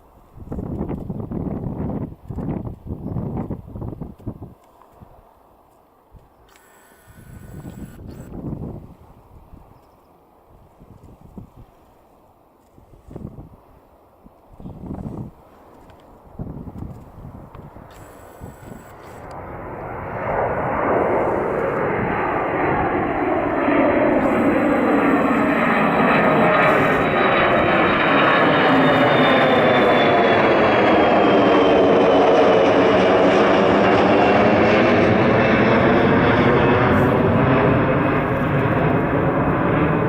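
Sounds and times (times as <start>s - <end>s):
high jet whine: 15.9s - 40.0s
jet engines roaring: 17.4s - 40.0s.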